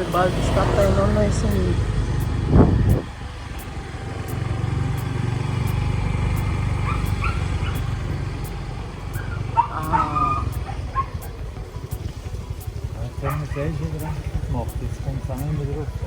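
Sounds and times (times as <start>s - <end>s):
faint high calls: 0.0s - 16.0s
motorbike engine rumbling: 0.0s - 16.0s.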